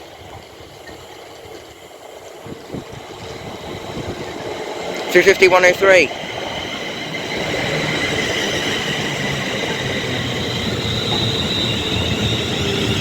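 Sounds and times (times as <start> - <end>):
train wheels rumbling on rail: 0.0 - 13.0
high whining tones: 3.1 - 13.0.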